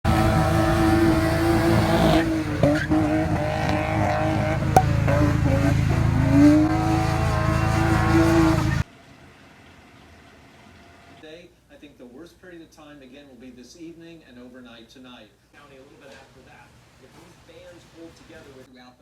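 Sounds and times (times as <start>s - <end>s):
car engine at high revs: 0.1s - 8.8s
tyres squealing: 0.8s - 5.6s.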